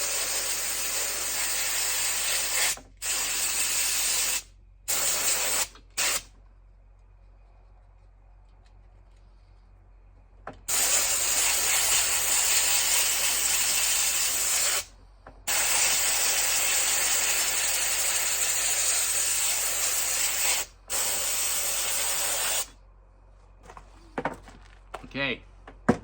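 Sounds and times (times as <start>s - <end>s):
compressed air hissing: 0.0s - 6.3s, 10.7s - 14.9s, 15.5s - 22.7s.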